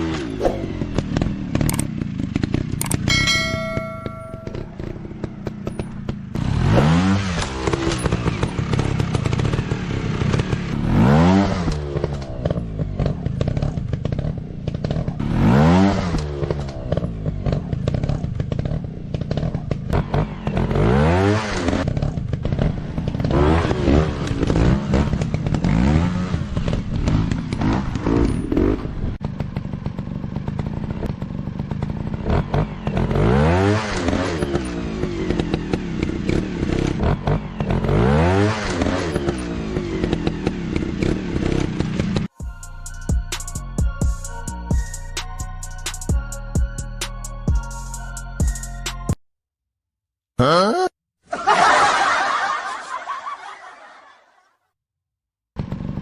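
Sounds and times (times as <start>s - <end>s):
dirt bike engine revving: 0.0s - 42.3s.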